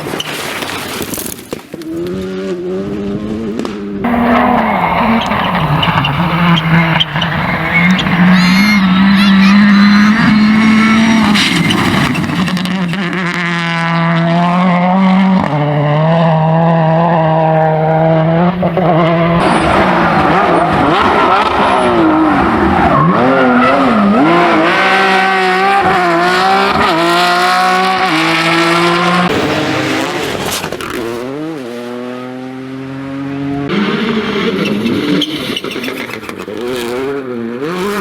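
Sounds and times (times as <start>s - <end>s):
rally car engines revving: 1.8s - 38.0s
tyre squeal: 4.1s - 13.0s, 34.4s - 37.0s.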